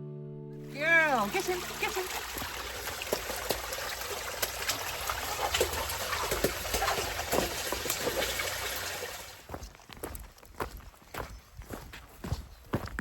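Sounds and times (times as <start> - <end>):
water trickling and splashing: 0.7 - 10.2.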